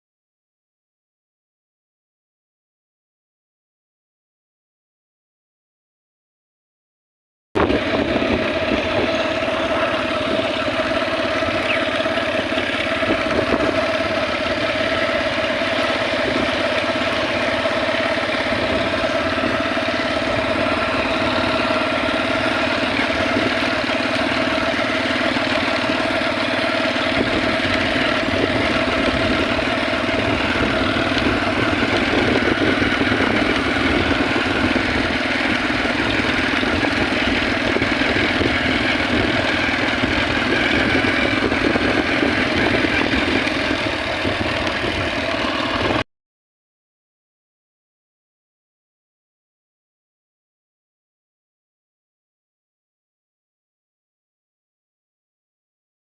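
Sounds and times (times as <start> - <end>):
motorcycle engine running: 7.6 - 46.1.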